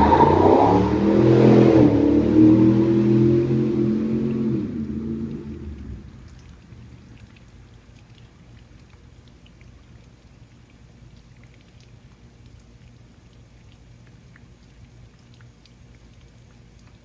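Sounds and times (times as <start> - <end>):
light scattered ticks: 4.8 - 17.0.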